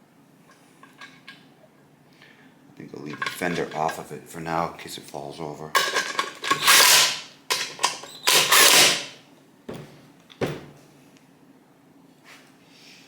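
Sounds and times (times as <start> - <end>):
metal parts scraping and clattering: 0.8 - 1.4, 3.1 - 4.1, 5.8 - 9.2.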